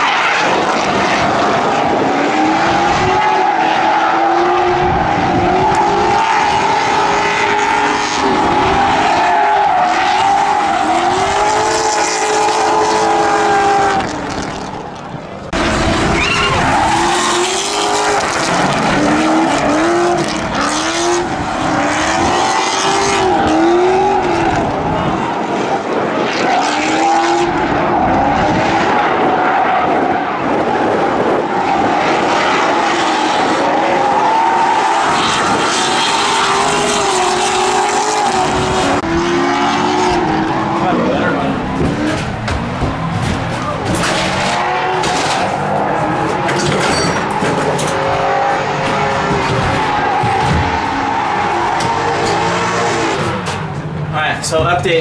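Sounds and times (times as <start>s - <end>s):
car engines revving: 0.0s - 55.0s
tyre noise: 36.6s - 55.0s.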